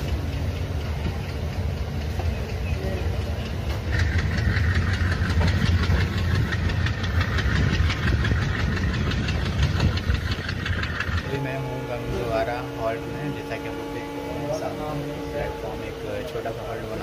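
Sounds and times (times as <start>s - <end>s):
rapid even clicking of wheels: 0.0s - 11.3s
train rumbling: 0.0s - 17.0s.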